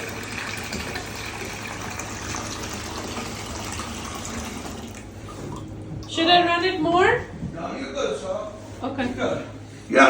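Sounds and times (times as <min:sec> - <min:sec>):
tap water running into bathtub: 0:00.0 - 0:06.4.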